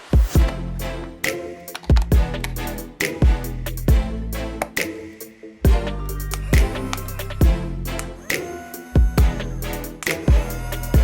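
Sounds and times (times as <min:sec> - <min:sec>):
electronic music with kick drum: 0:00.2 - 0:00.6, 0:01.9 - 0:04.2, 0:05.6 - 0:07.9, 0:08.9 - 0:11.0.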